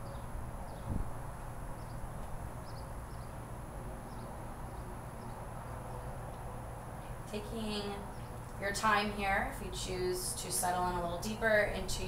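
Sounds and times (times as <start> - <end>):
outdoor background noise: 0.0 - 12.0
small bird chirping: 1.8 - 3.4.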